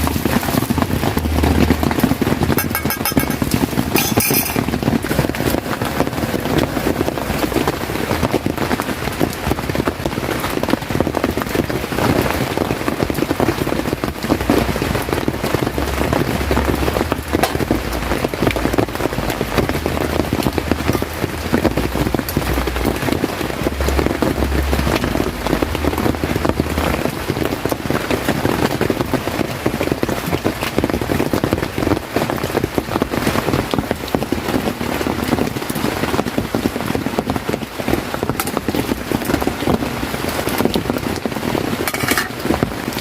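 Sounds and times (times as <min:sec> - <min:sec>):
low rumble: 0:00.0 - 0:08.6, 0:13.6 - 0:27.6
heavy rain: 0:00.0 - 0:43.0.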